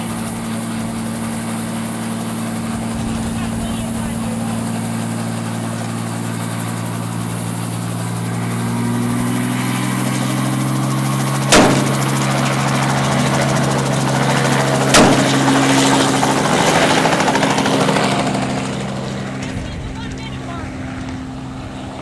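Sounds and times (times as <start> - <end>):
helicopter droning hum: 0.0 - 22.0
rifle shots: 11.5 - 12.5, 14.9 - 15.7.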